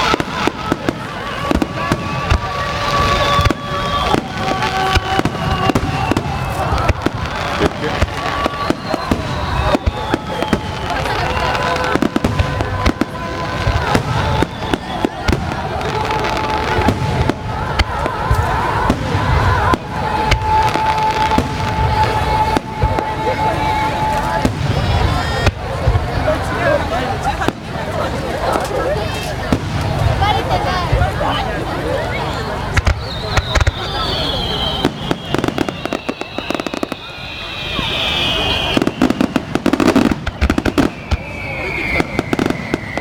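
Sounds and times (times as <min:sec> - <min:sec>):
fireworks bursting: 0:00.0 - 0:43.0
high whistle-like tone: 0:07.5 - 0:11.8, 0:13.8 - 0:15.3, 0:32.1 - 0:43.0.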